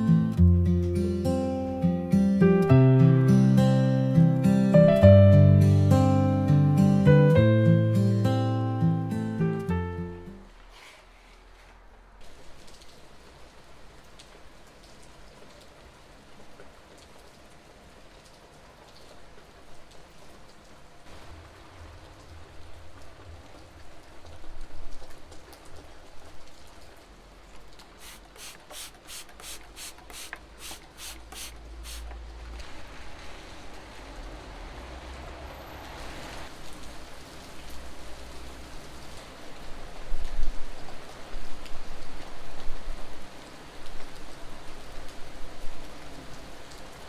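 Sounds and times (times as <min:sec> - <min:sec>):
steady rain falling: 0:09.6 - 0:47.0.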